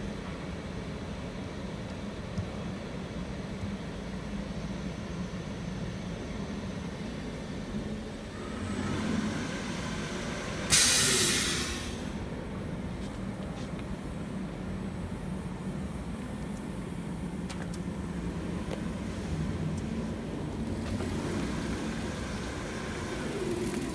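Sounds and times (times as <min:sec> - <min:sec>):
loud hiss: 0:08.9 - 0:12.2.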